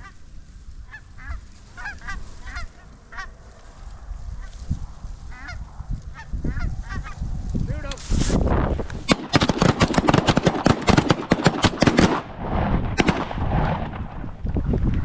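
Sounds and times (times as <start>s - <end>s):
shotgun shots: 9.0s - 12.3s, 12.9s - 14.1s.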